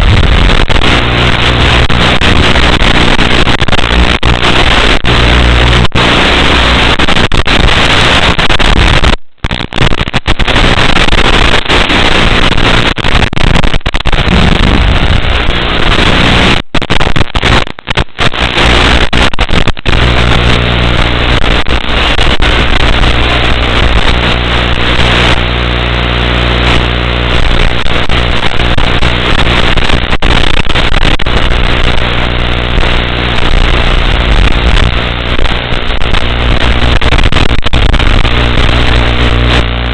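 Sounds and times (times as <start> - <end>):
buzzing hum: 0.0 - 39.9
static hiss: 0.0 - 39.9.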